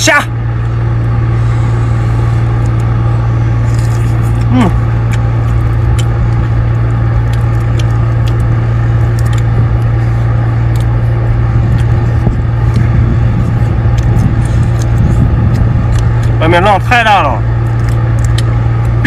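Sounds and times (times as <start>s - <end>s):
boat engine droning: 0.0s - 19.0s
light clicks and crackles: 17.7s - 19.0s.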